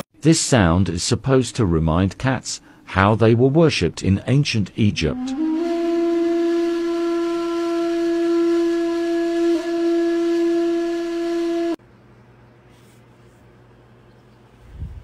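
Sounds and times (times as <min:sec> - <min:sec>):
wind instrument long held note: 0:05.0 - 0:11.8.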